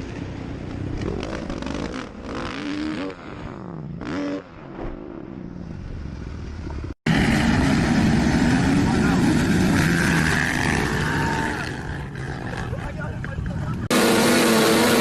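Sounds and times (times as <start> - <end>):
motorcycle engine revving: 1.0 - 5.7, 6.7 - 15.0.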